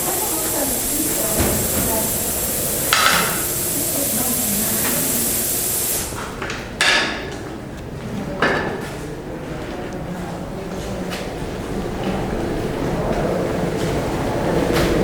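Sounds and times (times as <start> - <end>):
misting system hissing: 0.0 - 6.3.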